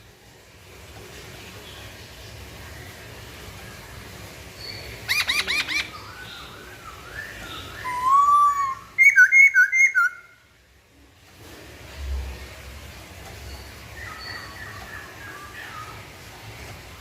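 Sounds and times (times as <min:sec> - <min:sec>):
bird singing loud whistles: 0:05.1 - 0:10.3.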